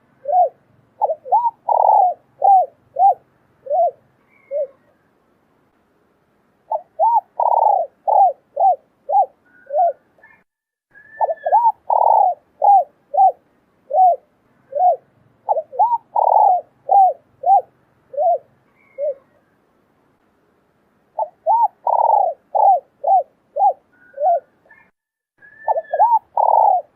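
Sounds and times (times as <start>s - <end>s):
dove cooing: 0.0s - 5.0s, 6.7s - 10.4s, 11.0s - 19.4s, 21.2s - 26.9s.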